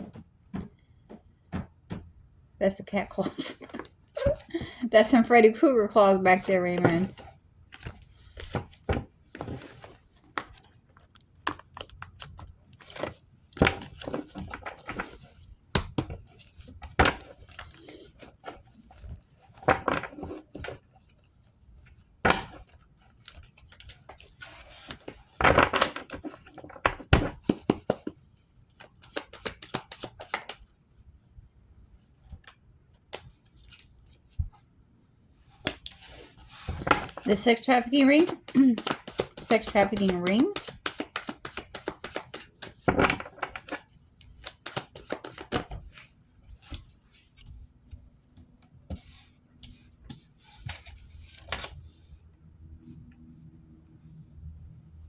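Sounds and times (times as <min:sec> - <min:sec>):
cards being shuffled: 0:11.4 - 0:21.4, 0:22.3 - 0:30.7, 0:32.2 - 0:34.6, 0:35.6 - 0:51.8.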